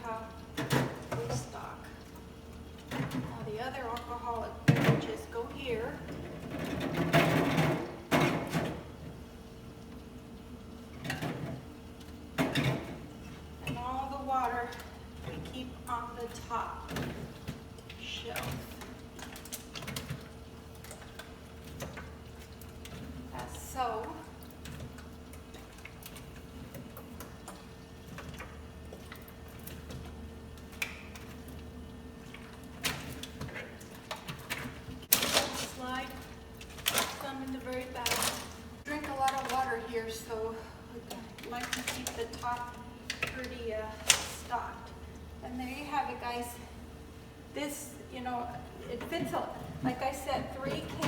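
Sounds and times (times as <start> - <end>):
fridge hum: 0.0 - 51.0.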